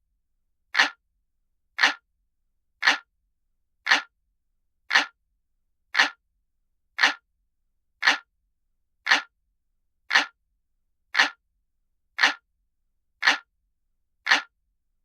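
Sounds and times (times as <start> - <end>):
clock ticking: 0.8 - 1.0, 1.8 - 2.0, 2.8 - 3.1, 3.9 - 4.1, 4.9 - 5.2, 6.0 - 6.2, 7.0 - 7.2, 8.0 - 8.3, 9.1 - 9.3, 10.1 - 10.4, 11.2 - 11.4, 12.2 - 12.4, 13.2 - 13.5, 14.3 - 14.5.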